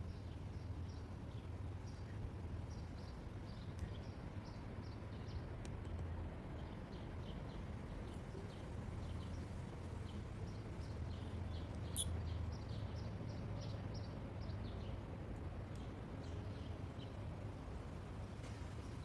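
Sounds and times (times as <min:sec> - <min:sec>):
small birds chirping: 0:10.5 - 0:14.9.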